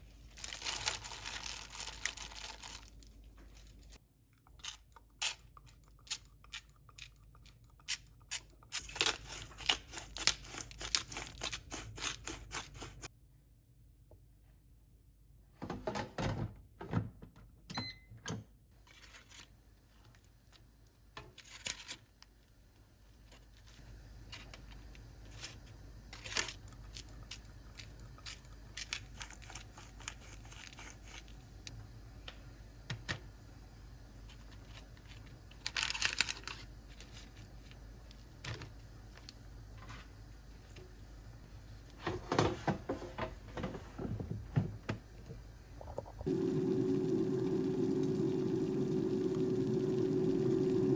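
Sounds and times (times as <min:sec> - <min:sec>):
rustling or tearing: 0:00.3 - 0:04.0, 0:08.3 - 0:13.1, 0:26.2 - 0:31.4, 0:34.3 - 0:37.8.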